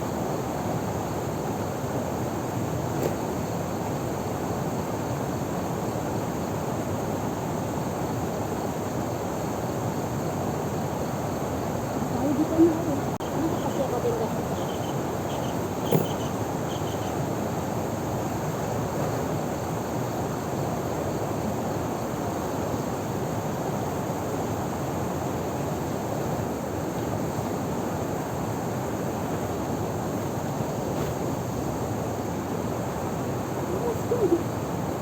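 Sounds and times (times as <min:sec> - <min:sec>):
faint short chirps: 0:14.6 - 0:17.2
sharp knock: 0:15.9 - 0:16.3.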